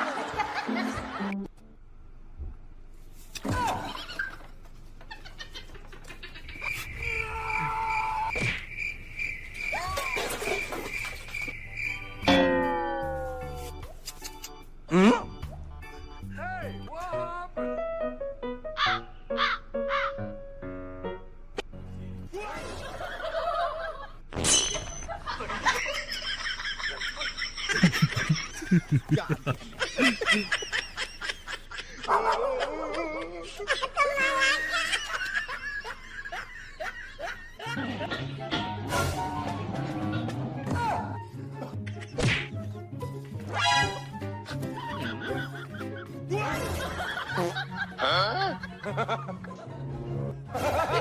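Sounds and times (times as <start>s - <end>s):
people laughing: 0.0s - 1.5s, 22.4s - 24.2s, 25.1s - 38.5s, 44.4s - 51.0s
people talking: 28.2s - 30.5s.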